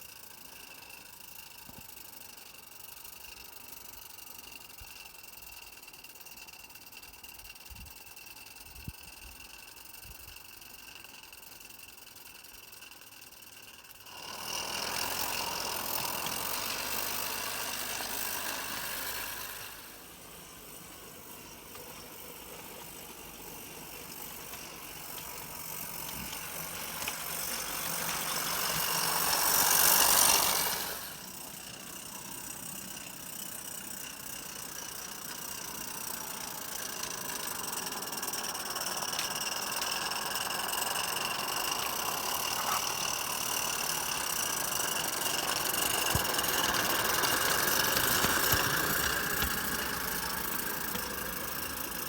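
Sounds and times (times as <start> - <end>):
steam train hissing and rattling: 14.3 - 32.3, 34.5 - 52.0.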